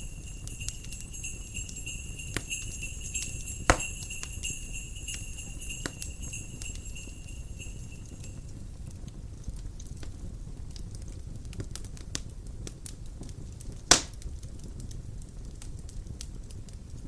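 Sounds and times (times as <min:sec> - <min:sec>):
sleigh bells ringing: 0:00.0 - 0:08.6
wood fire crackling: 0:00.0 - 0:17.0
fire pop: 0:03.6 - 0:04.5, 0:13.9 - 0:14.3.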